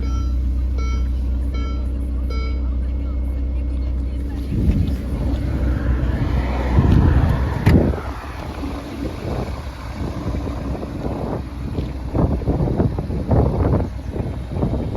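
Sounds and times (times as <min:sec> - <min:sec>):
car engine running: 0:00.0 - 0:14.9
wind on microphone: 0:04.2 - 0:14.9.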